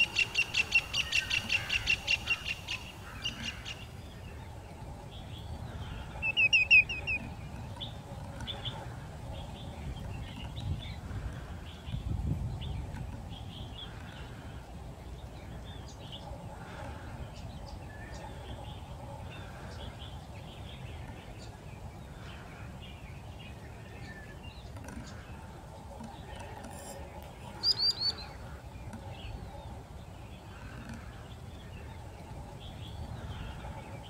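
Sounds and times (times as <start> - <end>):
bird chirps: 0.0 - 3.9, 6.2 - 8.8, 27.4 - 28.4
soft bird call: 0.0 - 3.9, 6.2 - 7.3, 26.3 - 28.4
low wind rumble: 0.0 - 34.0
high bird chirps: 6.2 - 7.3, 27.6 - 28.3.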